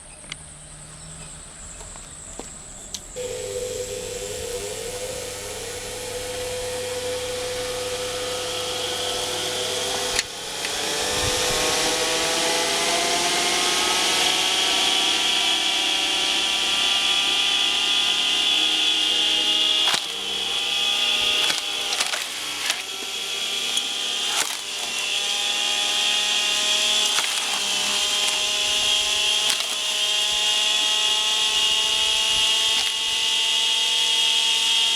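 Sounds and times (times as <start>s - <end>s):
electric motor whining: 2.8s - 34.9s
wood cracking as it splits: 17.9s - 31.0s.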